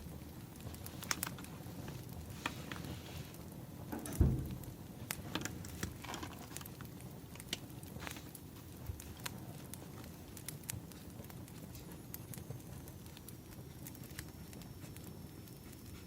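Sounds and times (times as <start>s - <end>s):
wood fire crackling: 0.0s - 16.0s
dull low thump: 4.2s - 4.7s.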